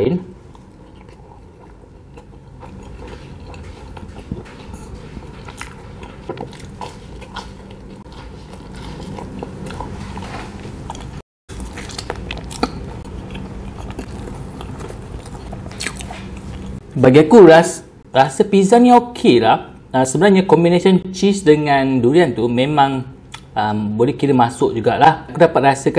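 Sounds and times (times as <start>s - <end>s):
person chewing food: 0.4s - 16.8s.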